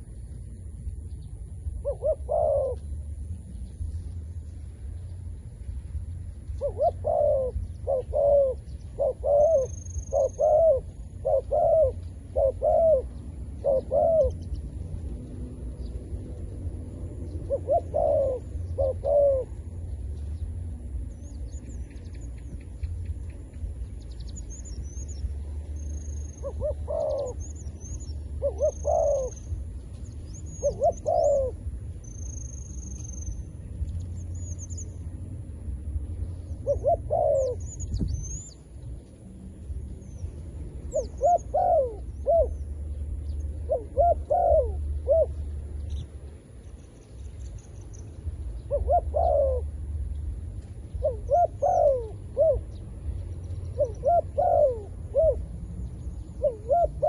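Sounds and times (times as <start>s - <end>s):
small birds chirping: 0.0s - 35.4s, 36.1s - 57.0s
steady low rumble: 0.0s - 57.0s
dove cooing: 1.7s - 3.6s, 6.4s - 20.9s, 25.9s - 32.4s, 36.5s - 38.6s, 40.8s - 46.0s, 48.6s - 49.9s, 50.6s - 55.6s, 56.2s - 57.0s.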